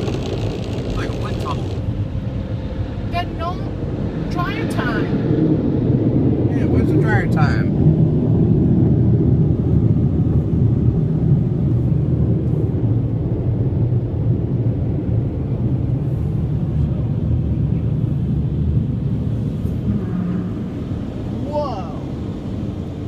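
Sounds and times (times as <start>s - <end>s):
car wash air blowers: 0.0s - 12.9s.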